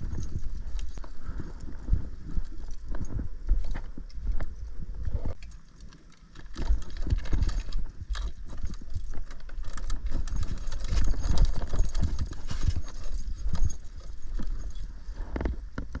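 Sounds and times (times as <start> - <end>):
wind rumbling on microphone: 0.0 - 5.4, 6.5 - 16.0
scooter rattling over rough trail: 5.1 - 16.0.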